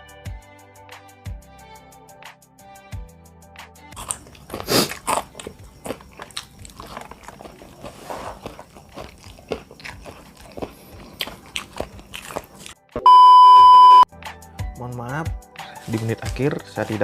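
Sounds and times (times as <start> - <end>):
person biting and chewing food: 4.0 - 12.8.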